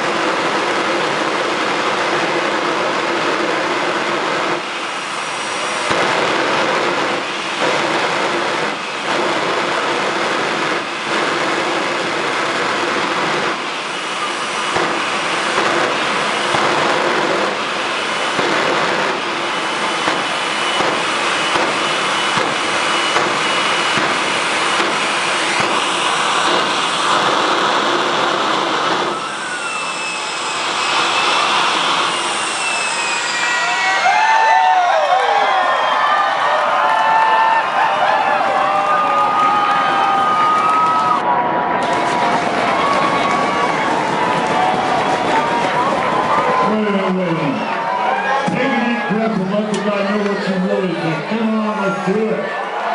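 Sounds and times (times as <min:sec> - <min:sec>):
jet engine running loudly: 0:00.0 - 0:52.9
sharp pops: 0:14.6 - 0:17.7, 0:18.3 - 0:30.2
gliding whistling tones: 0:29.0 - 0:34.4.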